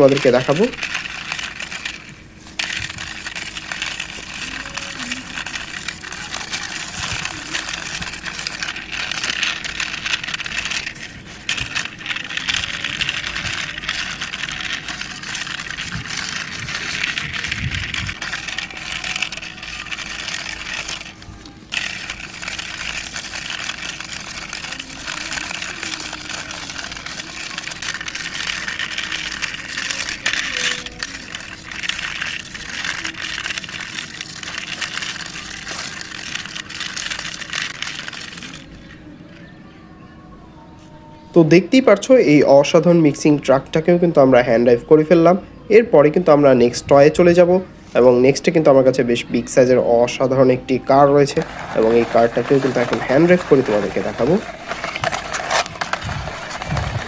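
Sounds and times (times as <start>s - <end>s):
toy truck wheels rolling: 0.0s - 39.3s, 50.9s - 57.0s.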